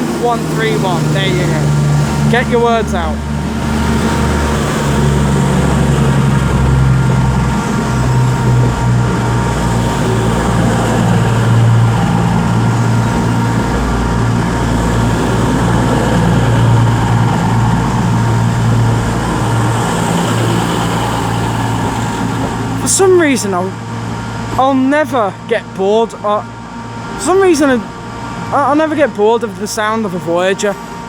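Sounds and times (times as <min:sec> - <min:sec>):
train diesel engines droning: 0:00.0 - 0:31.0.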